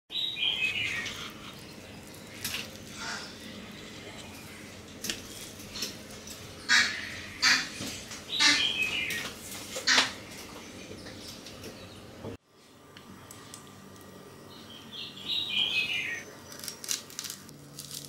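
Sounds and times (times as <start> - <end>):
harsh bird calls: 0.1 - 3.8, 6.4 - 12.2, 14.5 - 16.3.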